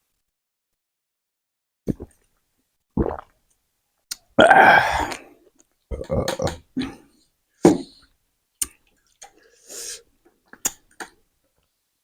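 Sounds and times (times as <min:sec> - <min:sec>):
mouth clicks and smacks: 0:04.1 - 0:04.3, 0:05.1 - 0:06.7, 0:08.6 - 0:09.4, 0:10.4 - 0:11.2
vocal grunts: 0:04.4 - 0:05.2, 0:05.9 - 0:07.1.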